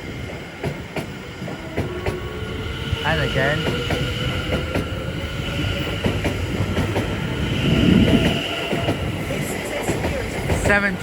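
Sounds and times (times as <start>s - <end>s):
train wheel rumble: 0.0s - 11.0s.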